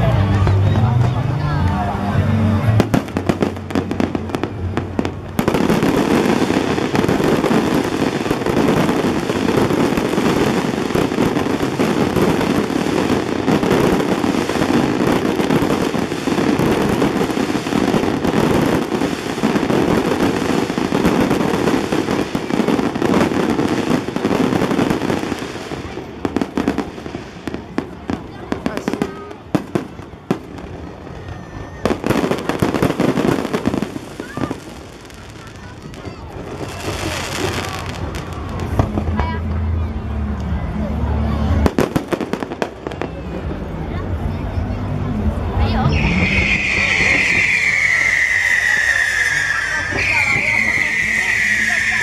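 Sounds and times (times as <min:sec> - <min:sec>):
fireworks crackling and banging: 0:00.0 - 0:52.0.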